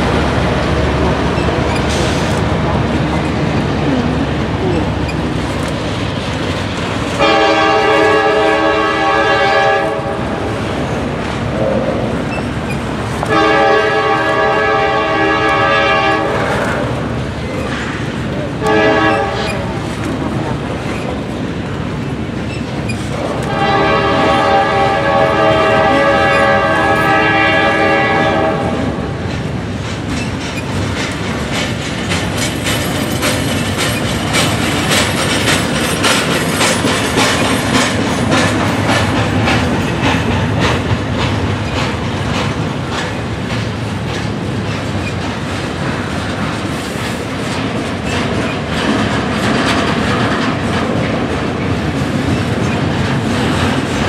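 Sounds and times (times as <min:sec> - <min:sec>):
train wheels clacking over rails: 0:00.0 - 0:54.0
train horn blast: 0:07.2 - 0:10.6, 0:13.2 - 0:16.8, 0:18.6 - 0:19.8, 0:23.2 - 0:29.1.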